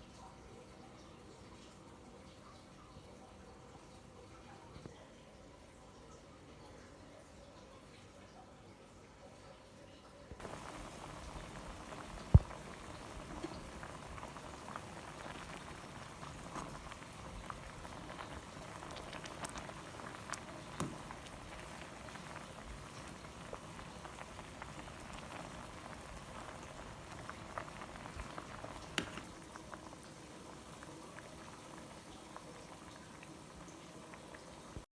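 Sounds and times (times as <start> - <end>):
soup boiling and bubbling: 10.4 - 34.9.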